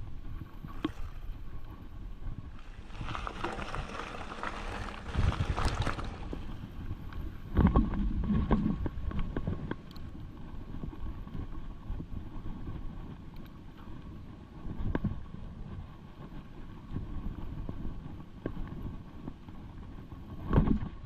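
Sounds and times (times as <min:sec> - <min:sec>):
wind buffeting microphone: 0:00.0 - 0:21.0
bike tyre noise: 0:02.3 - 0:09.4
bike knocking and rattling: 0:02.5 - 0:09.9.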